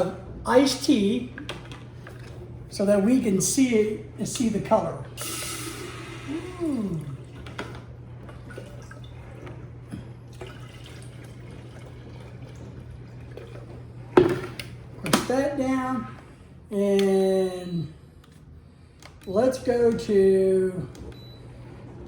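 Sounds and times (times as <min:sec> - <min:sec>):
liquid pouring into kettle: 0:05.2 - 0:14.4.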